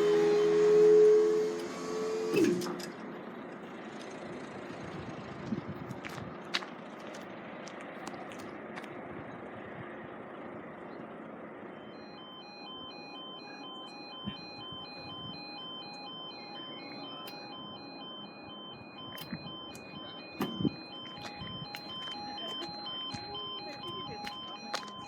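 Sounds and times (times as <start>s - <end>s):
level crossing warning alarm: 0.0s - 3.0s, 11.7s - 25.0s.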